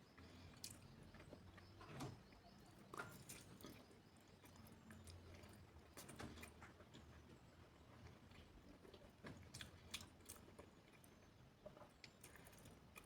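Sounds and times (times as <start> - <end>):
soft mouth clicks and smacks: 9.5 - 10.4.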